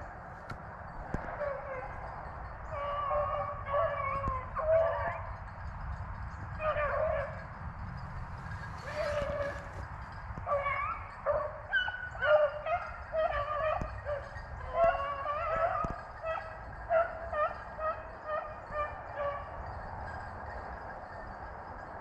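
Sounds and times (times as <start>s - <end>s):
hounds baying: 1.1s - 21.8s.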